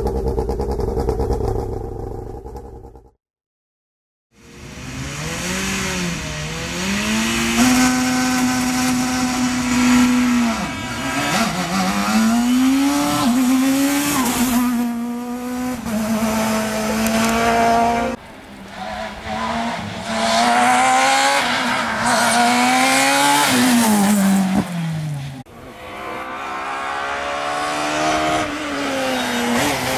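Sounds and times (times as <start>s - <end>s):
rally car engine revving high: 4.5s - 18.2s, 19.3s - 24.9s, 25.6s - 29.9s.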